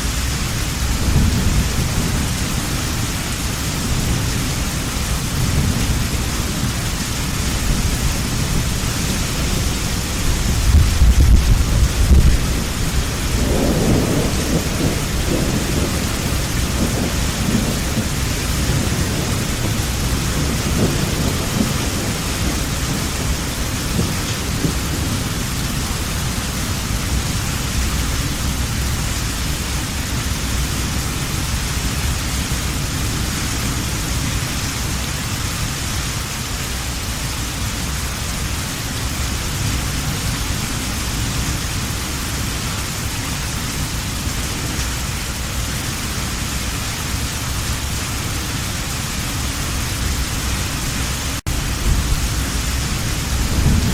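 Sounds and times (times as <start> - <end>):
thunder rumbling: 0.0 - 35.5, 38.6 - 53.9
heavy rain falling: 0.0 - 53.9.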